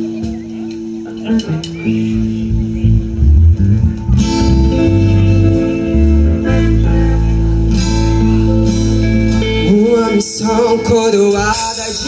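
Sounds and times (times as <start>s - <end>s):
gospel band playing: 1.1s - 12.0s.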